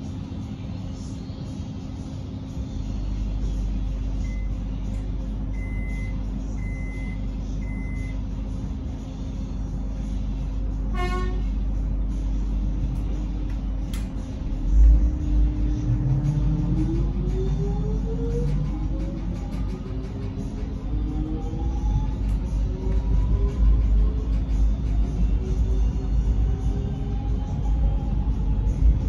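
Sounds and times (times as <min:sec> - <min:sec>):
train equipment hum: 0:00.0 - 0:29.0
train horn toot: 0:10.9 - 0:11.6.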